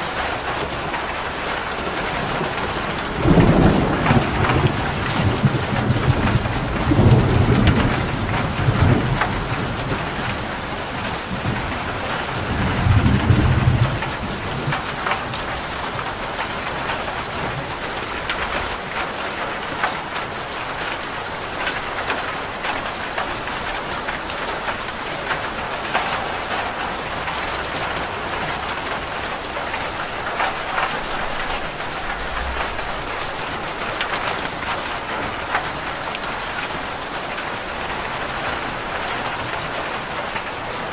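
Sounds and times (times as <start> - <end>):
rain pattering on a roof: 0.0 - 40.9
thunder rumbling: 2.0 - 16.0, 30.2 - 35.8.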